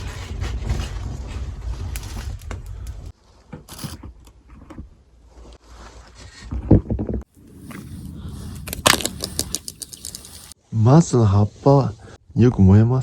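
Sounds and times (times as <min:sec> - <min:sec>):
bonfire crackling: 0:07.3 - 0:10.6.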